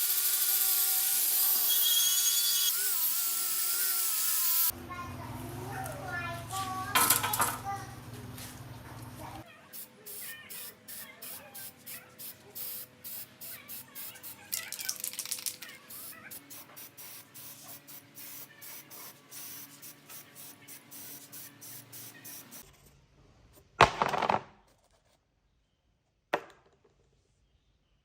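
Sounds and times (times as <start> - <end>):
short hissing bursts: 9.8 - 15.0, 15.8 - 22.6.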